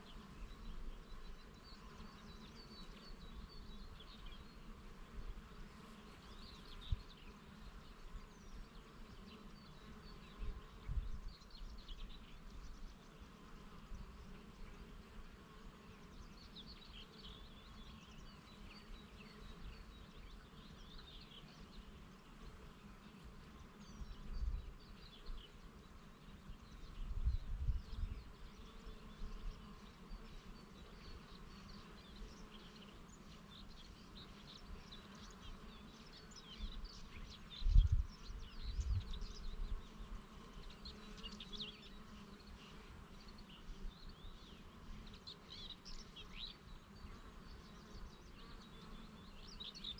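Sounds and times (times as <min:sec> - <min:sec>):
honeybees buzzing: 0:00.0 - 0:49.9
small birds chirping: 0:00.0 - 0:49.9.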